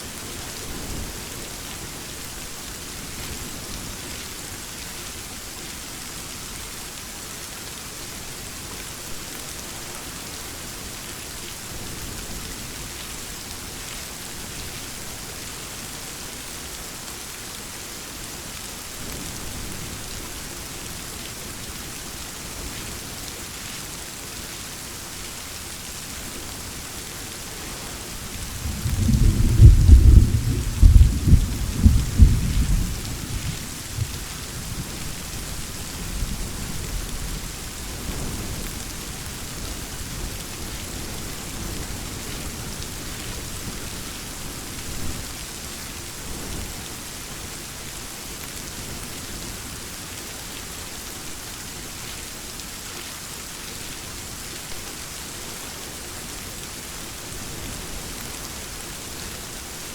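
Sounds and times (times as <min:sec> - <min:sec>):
steady rain falling: 0:00.0 - 0:59.9
rumbling thunder: 0:28.3 - 0:35.0.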